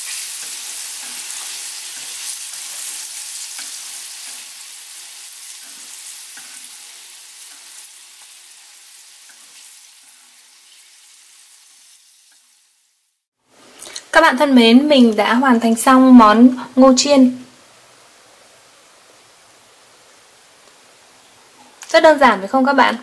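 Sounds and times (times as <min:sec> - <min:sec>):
chopsticks stirring in pan: 0:00.0 - 0:12.6
corn sizzling in hot oil: 0:00.0 - 0:14.2.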